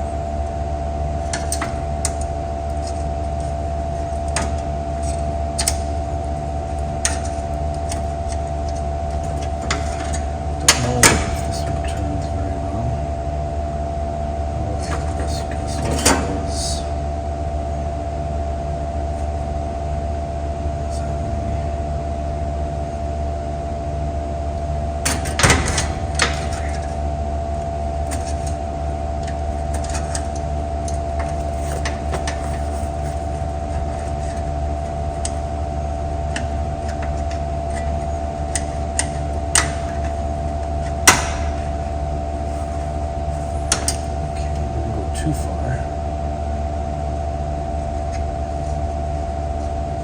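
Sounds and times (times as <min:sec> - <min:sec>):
steady machine hum: 0:00.0 - 0:50.0
clicks and knocks on metal parts: 0:25.0 - 0:26.9, 0:36.3 - 0:40.2, 0:40.8 - 0:41.7, 0:43.7 - 0:44.2.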